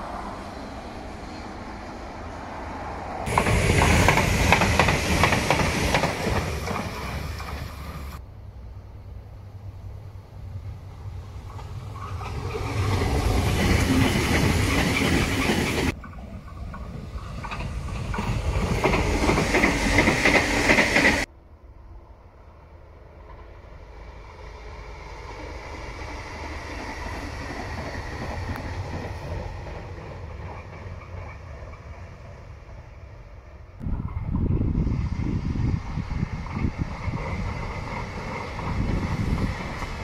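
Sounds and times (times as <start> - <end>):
distant train: 0.0 - 40.0
train wheels clattering on rails: 3.3 - 8.2, 11.4 - 21.3, 26.6 - 32.4, 36.4 - 40.0.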